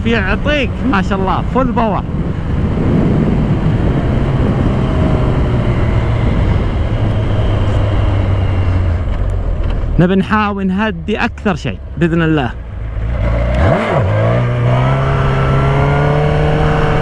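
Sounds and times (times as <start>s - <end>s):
wind rush on microphone: 0.0s - 10.0s
motorcycle engine slowing: 2.0s - 17.0s.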